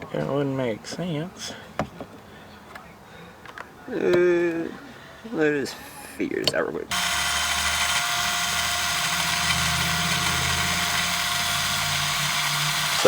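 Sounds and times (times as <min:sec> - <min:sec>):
power drill whining: 0:06.9 - 0:13.0.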